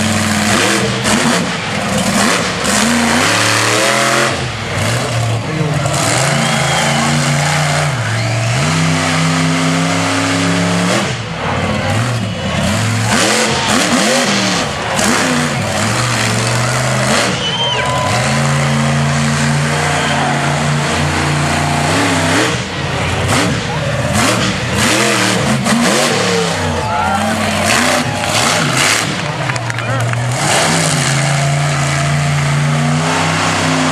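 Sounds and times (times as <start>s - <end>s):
truck engine revving: 0.0s - 33.9s.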